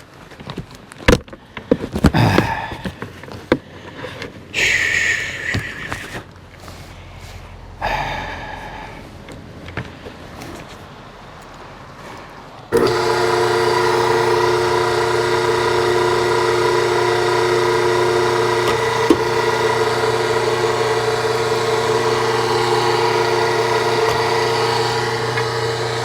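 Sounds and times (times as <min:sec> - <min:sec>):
log splitter motor running: 0:12.7 - 0:26.0.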